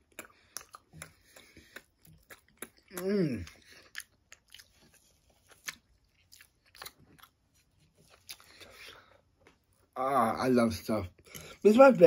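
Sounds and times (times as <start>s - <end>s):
person chewing food: 0.0s - 10.0s.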